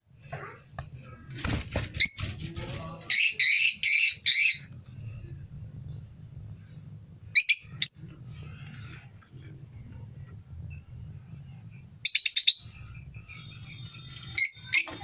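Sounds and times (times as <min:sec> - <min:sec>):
lovebirds chirping: 0:03.1 - 0:04.7, 0:07.4 - 0:08.2, 0:11.7 - 0:15.0.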